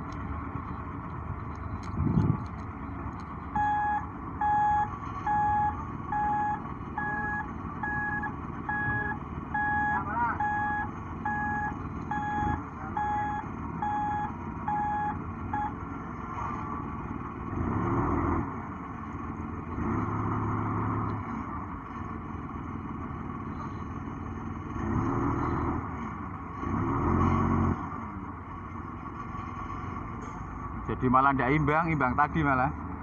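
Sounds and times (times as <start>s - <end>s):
diesel engine revving: 0.0s - 33.0s
travel alarm beeping: 3.6s - 15.8s.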